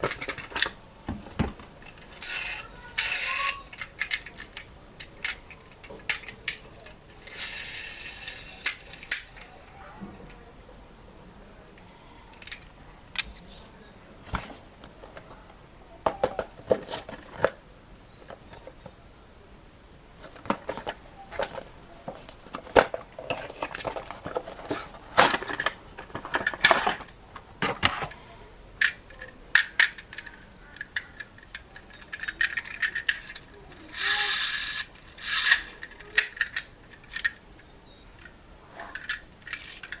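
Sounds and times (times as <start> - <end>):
rustling: 12.4 - 19.0, 20.1 - 40.0
small hard objects clicking: 28.8 - 37.4.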